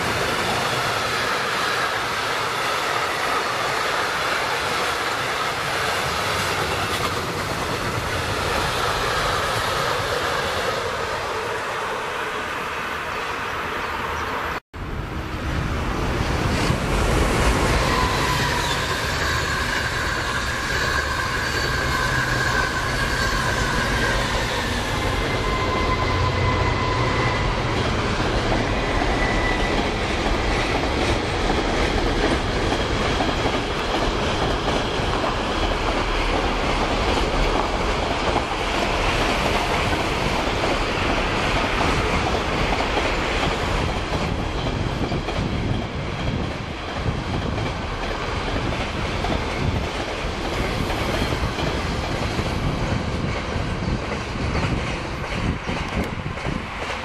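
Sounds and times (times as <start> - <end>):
freight train rumbling past: 0.0 - 57.0
train wheel squeal: 16.5 - 31.2, 50.4 - 57.0.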